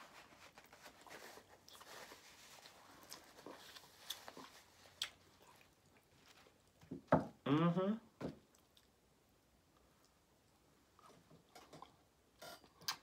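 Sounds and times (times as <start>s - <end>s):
chewing and mouth noises: 8.4s - 9.0s.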